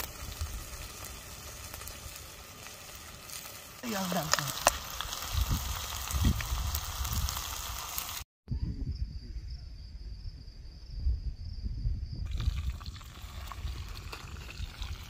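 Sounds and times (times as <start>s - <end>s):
food sizzling in a pan: 0.0s - 8.3s.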